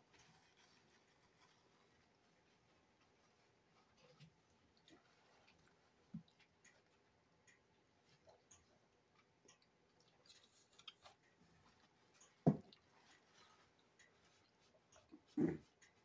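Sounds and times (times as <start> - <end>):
person chewing a sandwich: 9.2 - 11.3.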